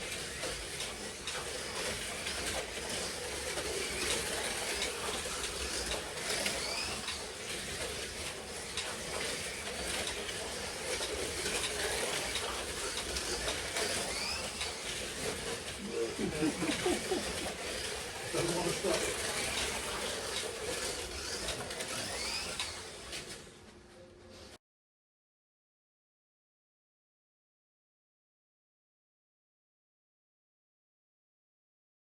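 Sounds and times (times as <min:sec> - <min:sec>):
slot cars rumbling on track: 0:00.0 - 0:23.0
electric motors whining: 0:00.0 - 0:23.5.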